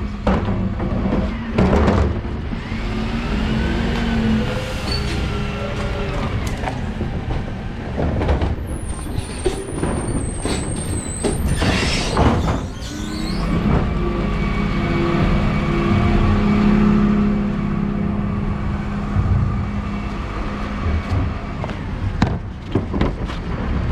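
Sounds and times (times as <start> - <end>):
clunks: 0.2 - 2.7, 5.0 - 14.1
high squeal: 4.5 - 6.2, 8.7 - 13.7.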